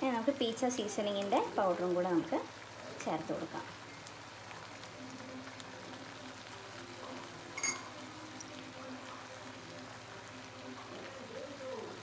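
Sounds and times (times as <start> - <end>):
tomato puree simmering and bubbling: 0.0 - 12.0
short clink: 7.6 - 7.9.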